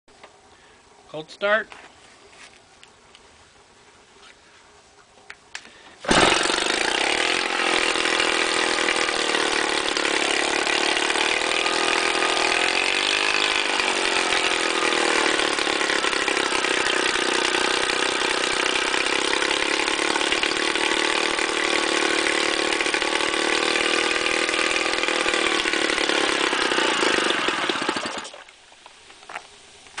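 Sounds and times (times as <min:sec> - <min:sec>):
outboard motor running: 0:06.1 - 0:28.4.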